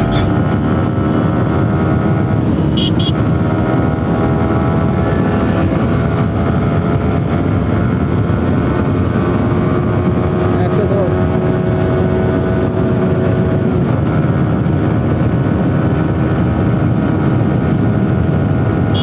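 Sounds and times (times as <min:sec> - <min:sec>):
short high beeps: 0:00.0 - 0:00.3, 0:02.8 - 0:03.2
motorcycle engine running: 0:00.0 - 0:19.0
road and wind noise: 0:00.0 - 0:19.0.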